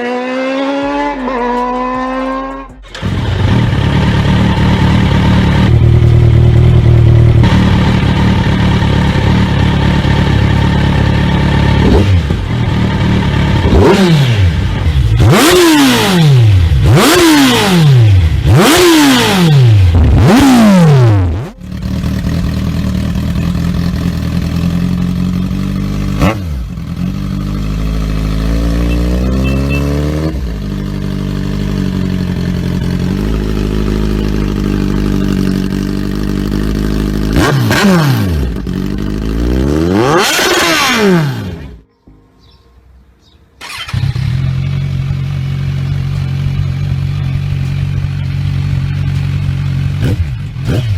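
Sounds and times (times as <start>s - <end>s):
motorcycle engine revving: 0.0s - 41.8s, 43.6s - 50.9s
motorcycle engine idling: 1.8s - 17.2s, 21.3s - 29.8s, 30.4s - 37.4s, 43.6s - 50.9s.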